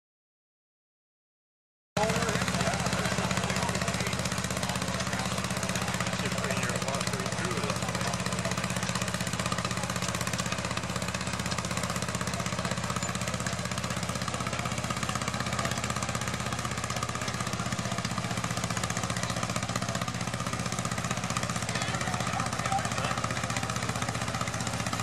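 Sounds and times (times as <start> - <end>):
tractor engine running: 2.0 - 25.0.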